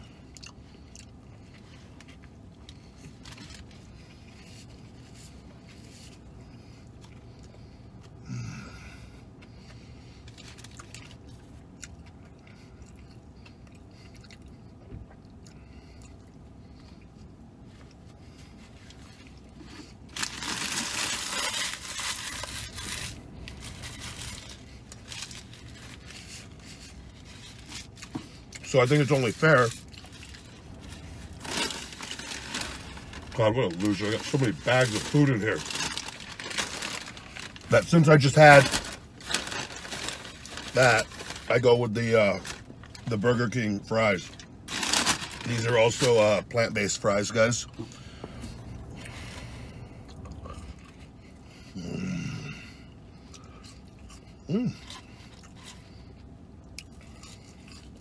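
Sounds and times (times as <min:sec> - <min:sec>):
person chewing food: 0:09.6 - 0:20.3, 0:53.2 - 0:58.0
paper napkin crinkling: 0:28.8 - 0:41.7, 0:44.7 - 0:46.1.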